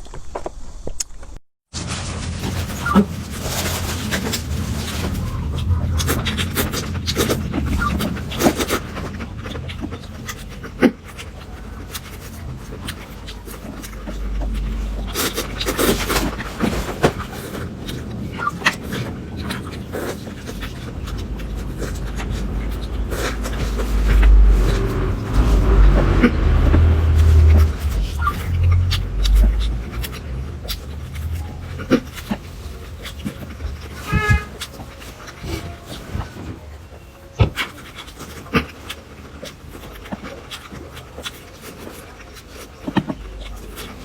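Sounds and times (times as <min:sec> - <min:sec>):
low rumble: 0:02.3 - 0:10.3, 0:11.5 - 0:34.6
person chewing and slurping: 0:02.4 - 0:36.6, 0:37.4 - 0:44.0.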